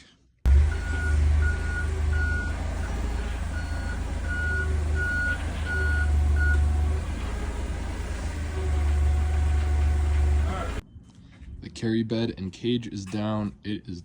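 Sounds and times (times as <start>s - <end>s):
engine low hum: 0.5s - 10.8s
reversing alarm beeping: 0.5s - 10.8s.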